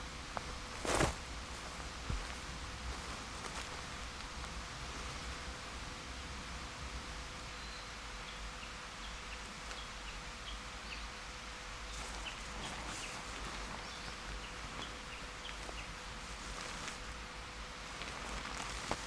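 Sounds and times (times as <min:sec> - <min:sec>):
outdoor hiss: 0:00.0 - 0:19.0
sharp crackles: 0:00.3 - 0:05.5, 0:11.9 - 0:17.2, 0:17.9 - 0:19.0.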